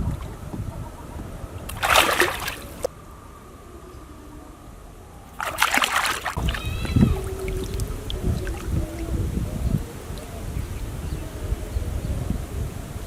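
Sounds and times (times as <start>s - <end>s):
water splashing: 1.4s - 2.9s, 5.3s - 11.0s
low rumbling: 6.2s - 13.0s.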